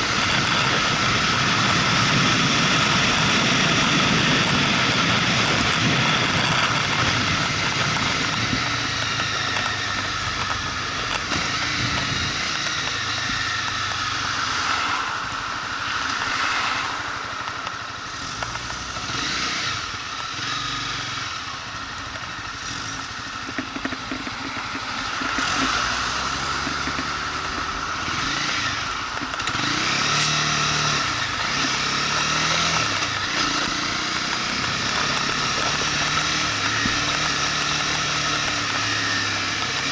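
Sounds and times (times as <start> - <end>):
wind noise: 0.0 - 20.7
motorcycle engine running: 0.0 - 39.9.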